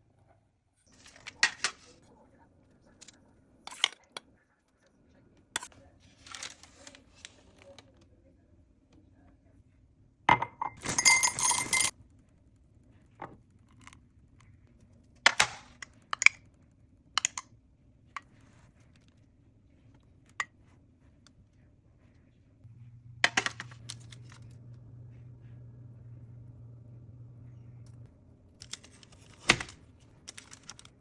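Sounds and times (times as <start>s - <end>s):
low steady hum: 0.0s - 31.0s
utensil clinking against dishes: 10.3s - 11.9s.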